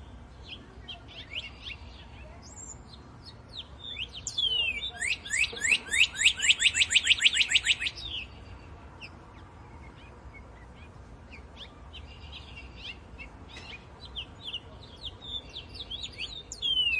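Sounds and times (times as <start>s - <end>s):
small songbird calling: 0.0s - 16.9s.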